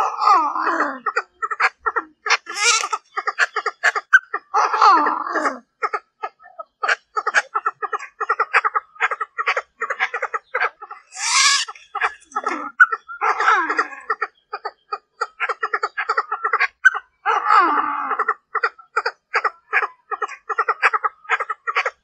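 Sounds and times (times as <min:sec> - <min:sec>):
francolin hen clucking: 0:00.6 - 0:17.4, 0:18.0 - 0:22.0
harsh bird call: 0:02.5 - 0:03.0, 0:11.0 - 0:12.2.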